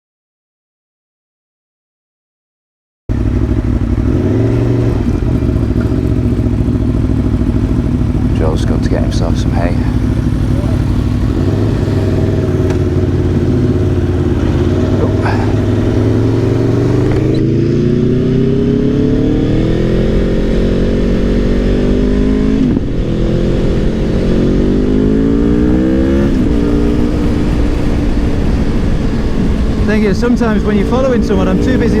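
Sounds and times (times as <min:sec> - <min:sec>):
motorcycle engine accelerating: 0:03.1 - 0:32.0
wind rush: 0:11.1 - 0:32.0.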